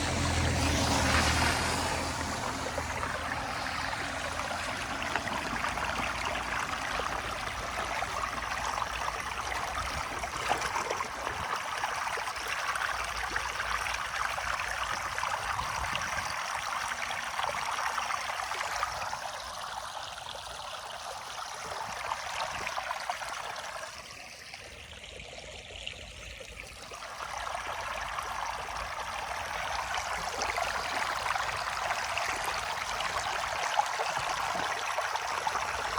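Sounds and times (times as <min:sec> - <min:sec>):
floodwater rushing down drain: 0:00.0 - 0:35.9.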